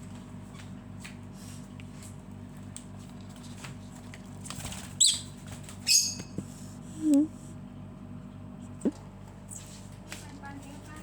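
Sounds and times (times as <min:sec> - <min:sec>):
lovebird calls: 0:05.0 - 0:06.4.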